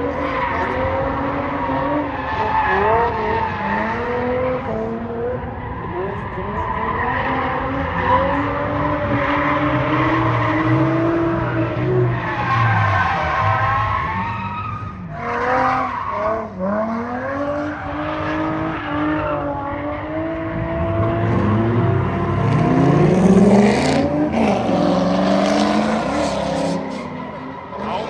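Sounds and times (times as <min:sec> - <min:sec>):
car engine revving: 0:15.1 - 0:28.0.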